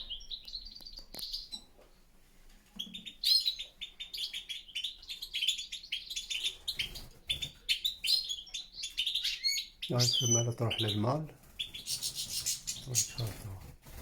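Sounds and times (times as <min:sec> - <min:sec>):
finches twittering: 0:02.8 - 0:14.0.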